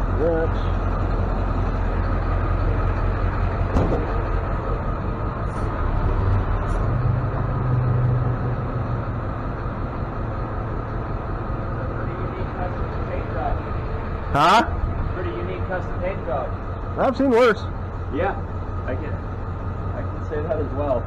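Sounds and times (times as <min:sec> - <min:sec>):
truck engine idling: 0:00.0 - 0:21.0
sharp metallic knock: 0:03.7 - 0:04.2.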